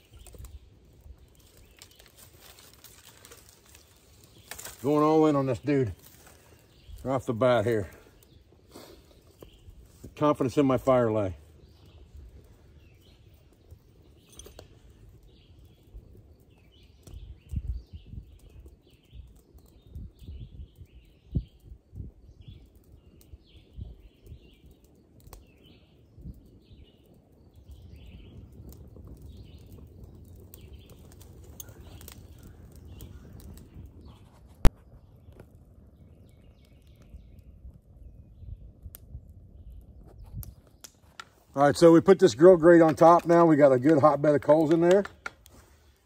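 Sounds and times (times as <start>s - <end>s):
birds chirping: 0.0s - 46.0s
sharp clicks: 42.8s - 45.6s.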